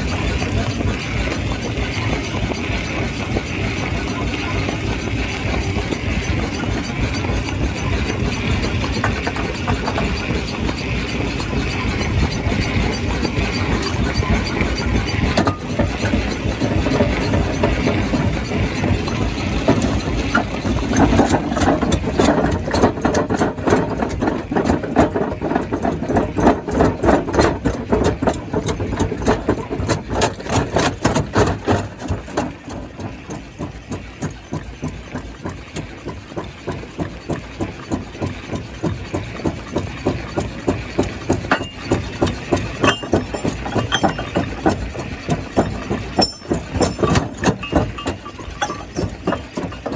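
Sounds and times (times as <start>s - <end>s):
stone crusher machinery pulsing: 0.0s - 49.9s.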